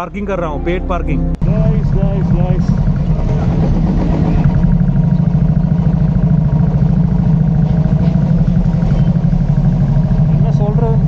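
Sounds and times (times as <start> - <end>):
vehicle engine running: 1.2 - 11.0.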